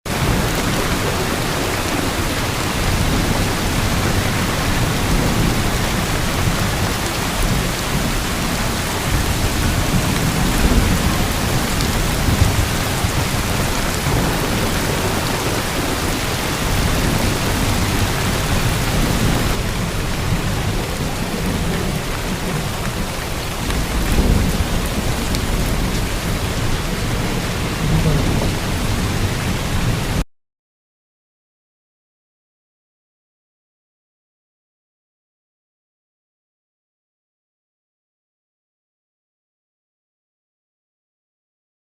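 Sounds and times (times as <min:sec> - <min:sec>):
heavy rain pouring: 0:00.1 - 0:30.2
deep rumble: 0:02.9 - 0:30.2.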